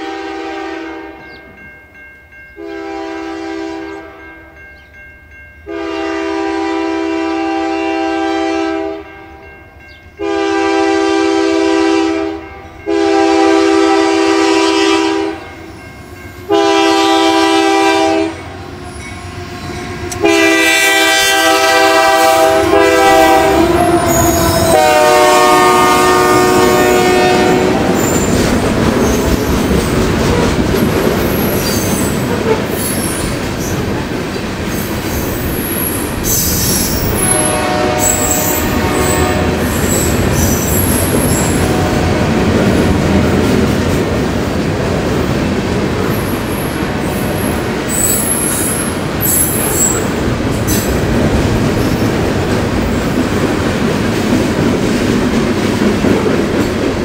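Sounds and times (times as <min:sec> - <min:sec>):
locomotive air horn blasts: 0:00.0 - 0:01.2, 0:02.6 - 0:04.2, 0:05.7 - 0:09.4, 0:10.2 - 0:15.6, 0:16.5 - 0:28.4, 0:37.0 - 0:42.5
freight train rumbling by: 0:00.0 - 0:57.0
train wheels squealing: 0:28.0 - 0:29.5, 0:31.2 - 0:33.9, 0:34.7 - 0:37.4, 0:38.0 - 0:41.7, 0:46.1 - 0:51.0.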